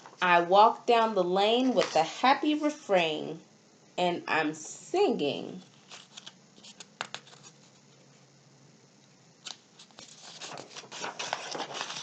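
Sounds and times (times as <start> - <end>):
book pages turning: 5.7 - 8.0, 9.4 - 12.0.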